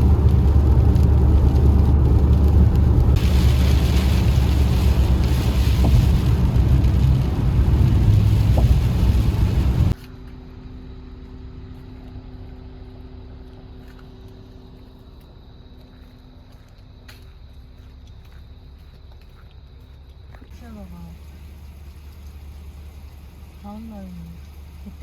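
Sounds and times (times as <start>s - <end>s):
loud low rumbling: 0.0s - 10.0s.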